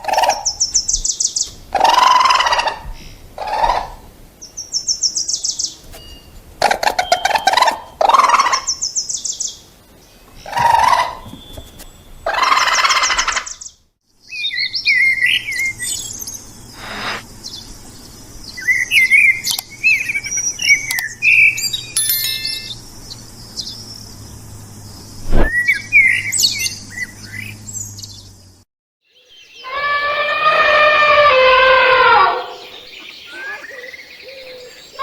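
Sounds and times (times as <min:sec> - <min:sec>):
bird chirps and tweets: 0:13.6 - 0:28.5, 0:32.6 - 0:35.0
raspy bird calls: 0:32.0 - 0:35.0.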